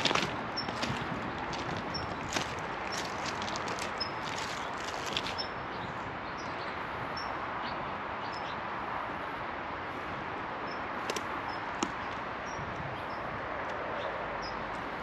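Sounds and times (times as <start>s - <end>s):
small birds chirping: 0.0s - 8.6s.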